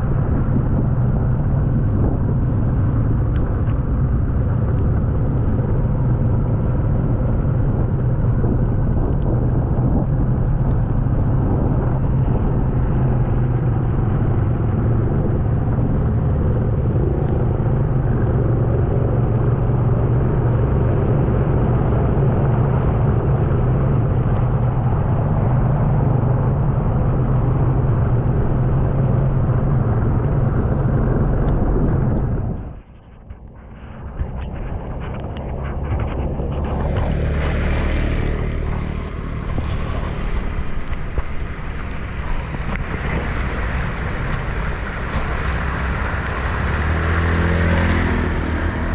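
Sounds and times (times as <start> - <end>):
vehicle engine running: 0.0 - 48.9.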